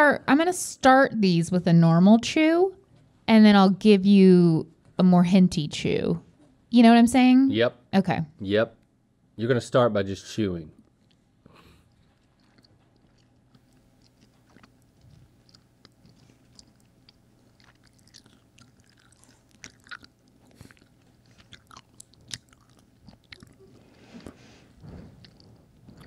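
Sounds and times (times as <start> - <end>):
person chewing: 10.8 - 26.0.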